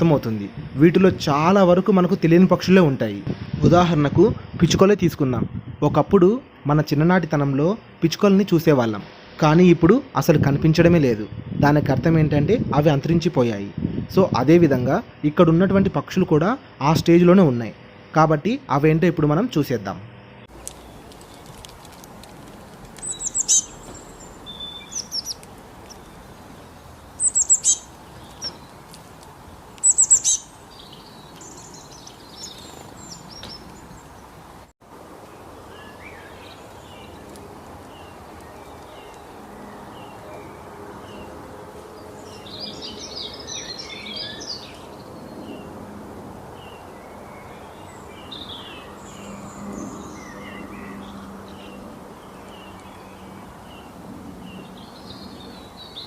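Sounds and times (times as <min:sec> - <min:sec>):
chorus of bird chirps and twitters: 0:20.2 - 0:56.0.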